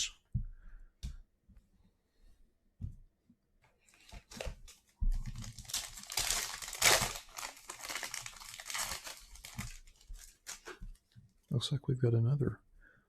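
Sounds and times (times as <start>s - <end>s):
foil wrapper tearing and crinkling: 4.1s - 10.9s.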